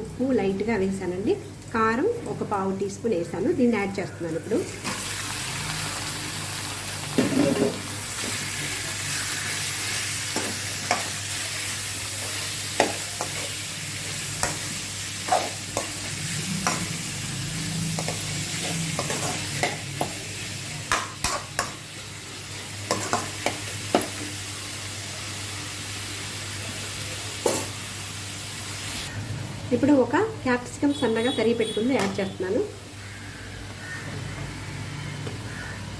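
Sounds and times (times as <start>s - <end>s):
chicken sizzling in a pan: 4.6s - 29.2s
spatula scraping and knocking pan: 17.9s - 20.2s.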